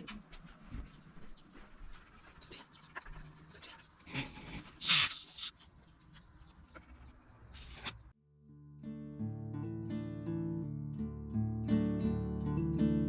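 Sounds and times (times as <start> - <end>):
dog hissy bursts: 4.2 - 5.5.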